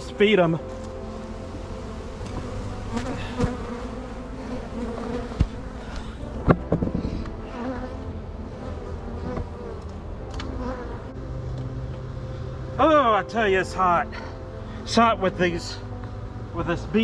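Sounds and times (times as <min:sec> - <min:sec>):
bees buzzing: 0:00.0 - 0:12.7.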